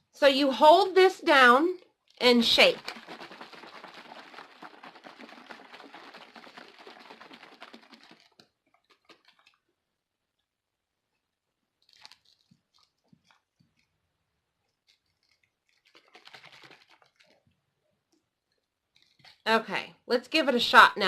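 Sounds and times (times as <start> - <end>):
plastic bottle of water shaken: 1.3 - 9.8, 11.8 - 14.0, 14.6 - 17.6, 19.0 - 19.5
faint handling noise: 11.1 - 19.4.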